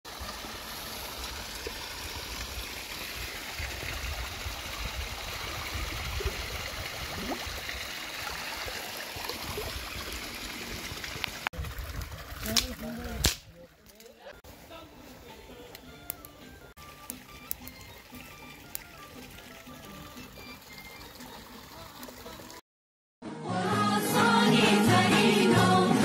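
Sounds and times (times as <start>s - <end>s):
flowing water rushing: 0.1s - 13.8s, 16.6s - 22.6s.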